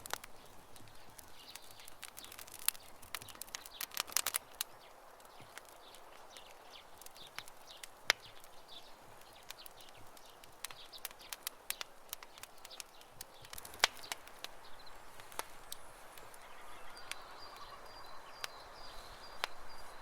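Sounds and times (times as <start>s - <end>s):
campfire crackling: 0.0s - 20.0s
faint birds chirping: 0.0s - 20.0s.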